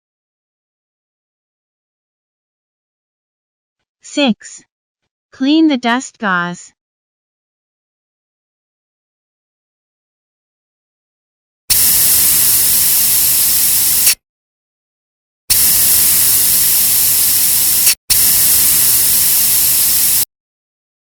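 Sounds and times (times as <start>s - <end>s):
compressed air hissing: 11.7s - 14.2s, 15.5s - 20.3s.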